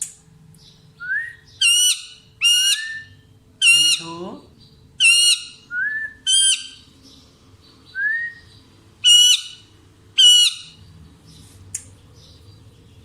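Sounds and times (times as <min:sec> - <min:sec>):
parrot rising whistle: 0:01.0 - 0:03.2
parrot harsh squawks: 0:01.6 - 0:03.0, 0:03.6 - 0:04.2, 0:05.0 - 0:05.6, 0:06.2 - 0:06.8, 0:09.0 - 0:10.8.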